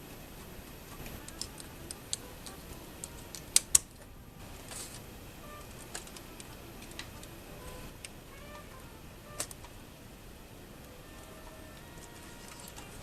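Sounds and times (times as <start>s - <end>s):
sharp clicks: 0.4s - 4.1s, 9.4s - 9.8s
small parts and tools clicking: 0.6s - 5.0s, 5.6s - 8.7s, 10.8s - 13.0s.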